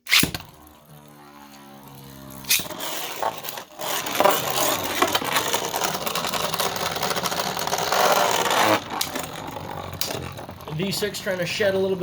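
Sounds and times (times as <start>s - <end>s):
spinning top launch snap: 0.0s - 10.6s
spinning tops clacking together: 0.0s - 12.0s
spinning tops scraping and rattling: 0.0s - 12.0s.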